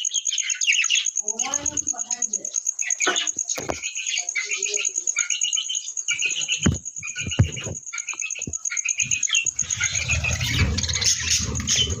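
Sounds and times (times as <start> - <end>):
cage birds chirping: 0.0 - 12.0
sharp thumps: 6.5 - 7.8
rustling rumbling noise: 8.5 - 12.0.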